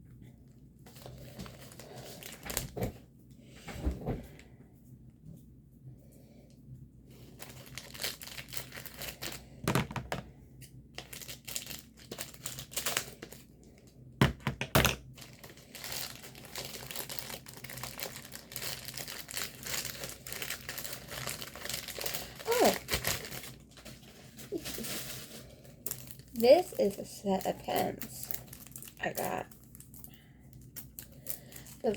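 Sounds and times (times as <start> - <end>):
packaging crinkling: 0.9 - 2.8, 7.2 - 10.2, 10.9 - 13.7, 15.0 - 31.9.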